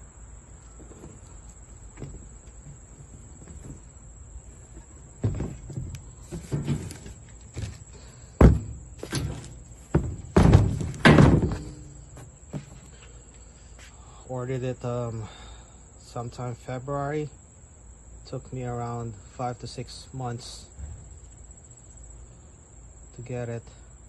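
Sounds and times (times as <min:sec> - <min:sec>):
metal parts knocking and clunking: 0:01.9 - 0:12.8.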